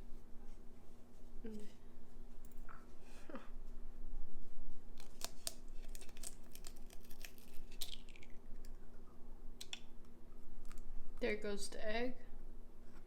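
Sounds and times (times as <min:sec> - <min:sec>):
faint steady hum: 0:00.0 - 0:13.0
egg tapping and cracking: 0:05.0 - 0:08.8, 0:09.6 - 0:10.9.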